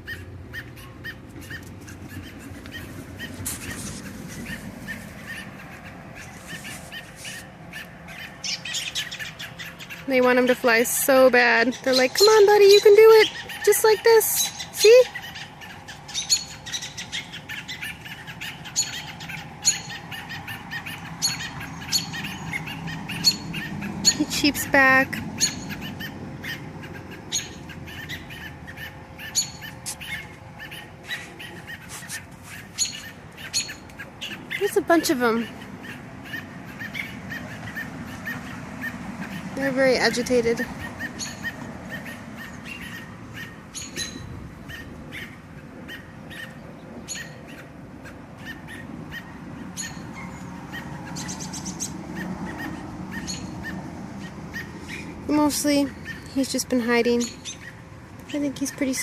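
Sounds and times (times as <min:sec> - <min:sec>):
bird alarm calls: 0:00.0 - 0:10.5, 0:11.1 - 0:59.0
robins chirping sharply: 0:00.0 - 0:59.0.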